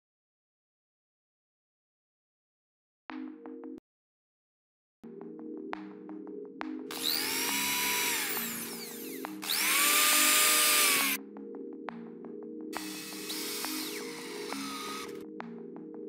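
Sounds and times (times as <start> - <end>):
background music: 3.1 - 3.8, 5.0 - 16.0
electric drill whining: 6.9 - 11.2, 12.8 - 15.2.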